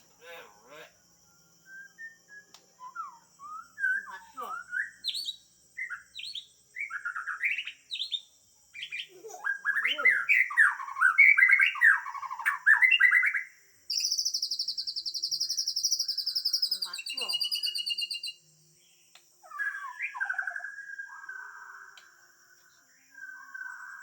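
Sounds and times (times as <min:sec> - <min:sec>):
songbird chirps and whistles: 0:00.0 - 0:24.0
bird high rapid trill: 0:08.8 - 0:18.4.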